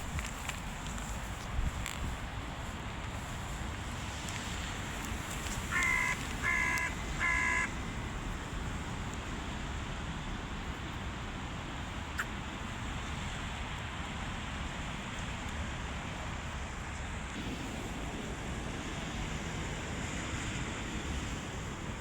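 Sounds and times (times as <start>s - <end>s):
crow cawing: 5.5s - 8.4s.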